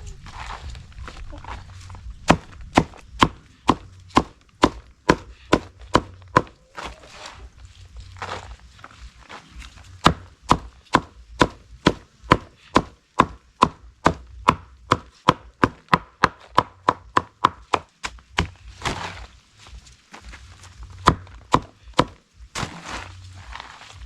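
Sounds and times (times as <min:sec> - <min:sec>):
blade chopping wood: 0:02.2 - 0:06.5, 0:10.0 - 0:19.2, 0:21.0 - 0:23.1.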